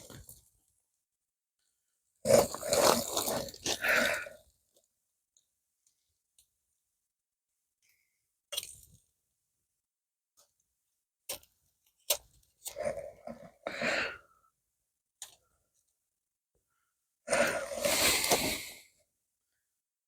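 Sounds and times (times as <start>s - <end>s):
breathy exhalations: 3.7s - 4.4s, 13.6s - 14.3s, 17.3s - 18.9s.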